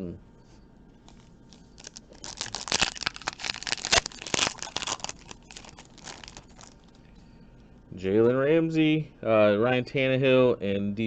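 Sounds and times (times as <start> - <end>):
foil wrapper tearing and crinkling: 1.1 - 6.9.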